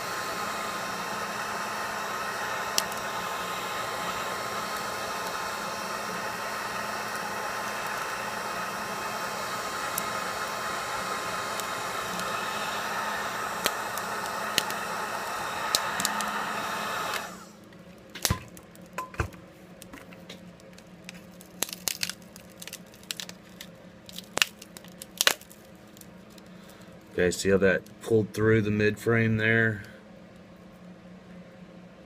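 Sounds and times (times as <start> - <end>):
heat gun blowing: 0.0 - 17.6
small clicks and crackles: 19.8 - 27.2.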